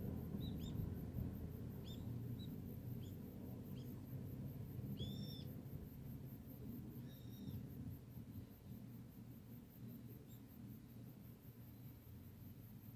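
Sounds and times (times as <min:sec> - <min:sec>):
steady low rumble: 0:00.0 - 0:07.0
small bird chirping: 0:00.3 - 0:00.9, 0:01.7 - 0:04.1, 0:04.9 - 0:05.5, 0:07.0 - 0:07.6.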